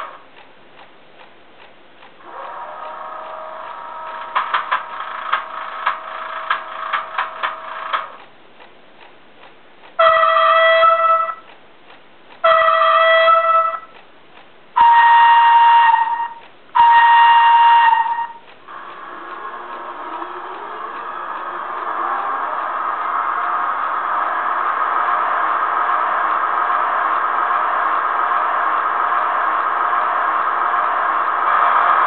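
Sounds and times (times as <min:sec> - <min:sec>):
two-tone locomotive horn: 0:02.2 - 0:08.2, 0:10.0 - 0:11.5, 0:12.4 - 0:14.0, 0:14.8 - 0:32.0
steady tone: 0:14.8 - 0:32.0.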